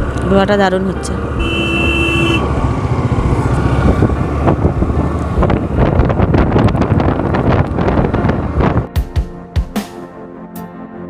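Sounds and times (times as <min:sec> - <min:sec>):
road noise: 0:00.0 - 0:08.9
scooter engine humming: 0:00.0 - 0:08.9
wind buffeting microphone: 0:02.4 - 0:08.9.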